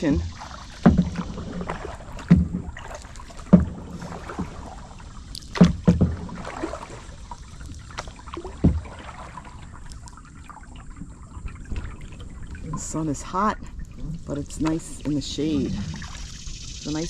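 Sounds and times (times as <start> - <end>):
paddles knocking on kayak hull: 0.0 - 9.9
paddles dipping into water: 0.0 - 17.0.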